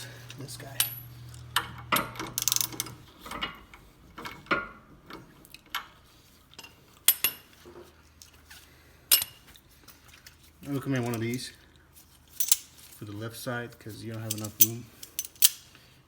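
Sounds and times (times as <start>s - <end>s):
socket ratchet clicking: 1.6s - 3.0s
hand tools clinking on metal: 14.0s - 15.6s.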